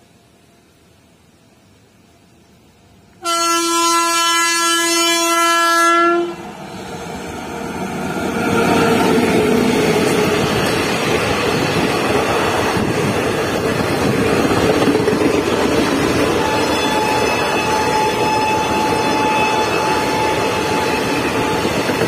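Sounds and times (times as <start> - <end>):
passenger train passing at speed: 0.0 - 22.0
locomotive horn blast: 3.2 - 6.4, 16.4 - 21.7.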